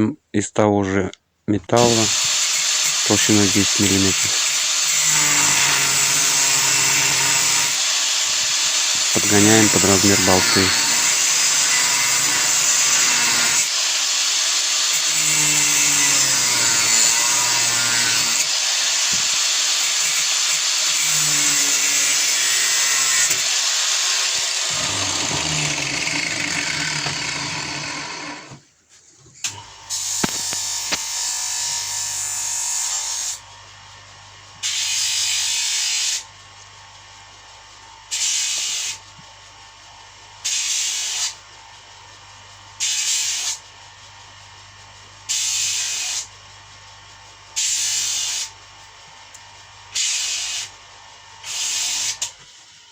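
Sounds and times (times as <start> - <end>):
power tool cutting metal: 1.8 - 28.6, 29.4 - 36.3, 38.1 - 39.1, 40.4 - 41.4, 42.8 - 43.7, 45.3 - 46.4, 47.6 - 48.6, 49.4 - 52.9.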